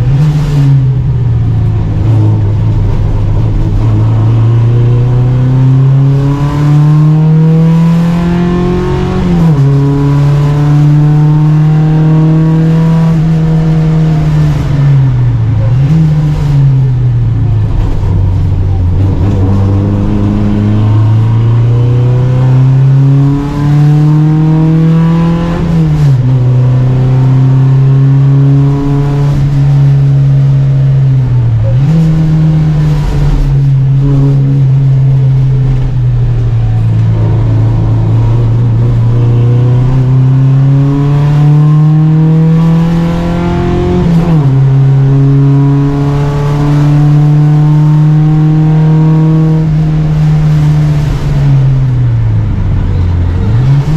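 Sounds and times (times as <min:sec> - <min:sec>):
race car engine at full throttle: 0:00.0 - 0:53.9.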